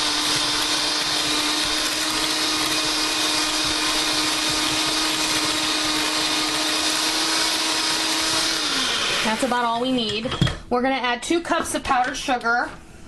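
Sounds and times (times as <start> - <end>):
electric mixer running: 0.0 - 9.8.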